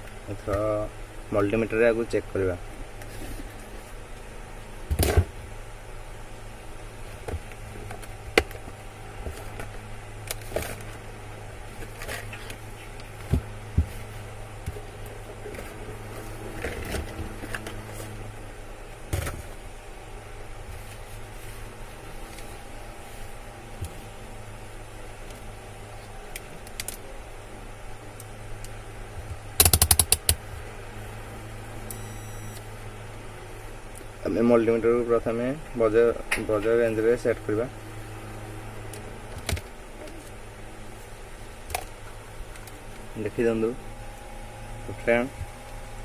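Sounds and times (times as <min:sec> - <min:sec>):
steady low hum: 0:00.0 - 0:46.0
rotary switch clicking: 0:29.6 - 0:30.4.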